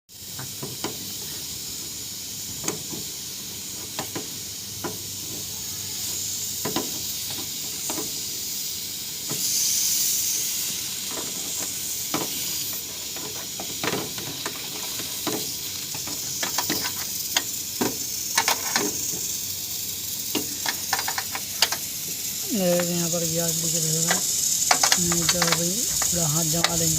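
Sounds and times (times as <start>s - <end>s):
gas hissing from a leak: 0.1s - 26.9s
clicks and taps: 24.1s - 26.8s.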